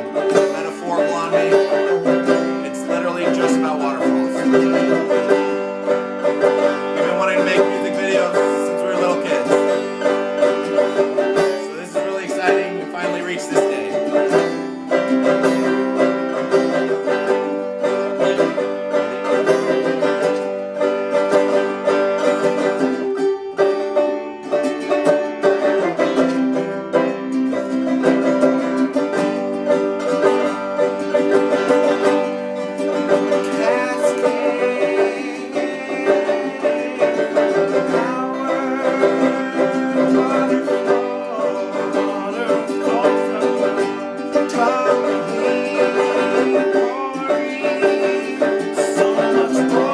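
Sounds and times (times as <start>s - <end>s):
finger-picked acoustic string instrument: 0.0s - 49.9s.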